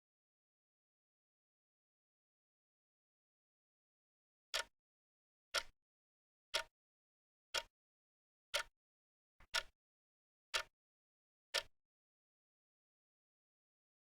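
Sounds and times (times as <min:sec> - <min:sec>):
clock ticks: 0:04.5 - 0:04.7, 0:05.5 - 0:05.7, 0:06.5 - 0:06.7, 0:07.5 - 0:07.7, 0:08.5 - 0:08.7, 0:09.4 - 0:09.7, 0:10.5 - 0:10.7, 0:11.5 - 0:11.7.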